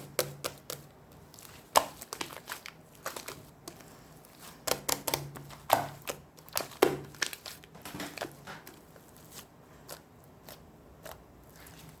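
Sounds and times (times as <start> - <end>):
slime squishing and popping: 4.6 - 8.8.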